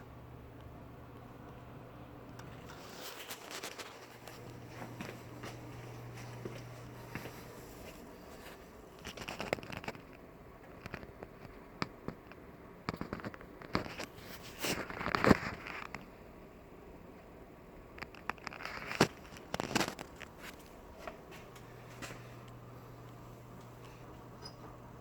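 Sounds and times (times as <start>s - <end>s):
low hum: 0.0s - 3.1s, 19.9s - 25.0s
wood fire crackling and popping: 17.9s - 24.8s.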